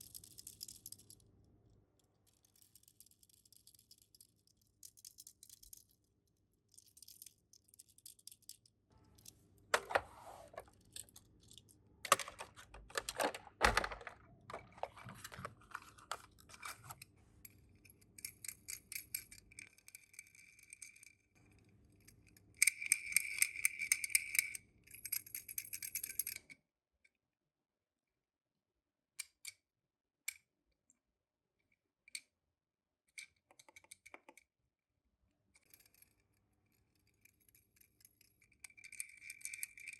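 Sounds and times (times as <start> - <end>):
toy cars clicking and rattling: 0.0 - 1.2, 2.2 - 6.0, 6.7 - 9.9, 10.5 - 17.1, 18.1 - 21.2, 22.2 - 26.6, 35.5 - 39.9.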